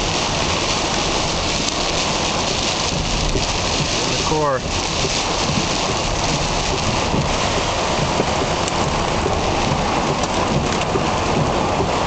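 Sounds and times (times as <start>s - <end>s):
heavy rain on car roof: 0.0s - 12.0s.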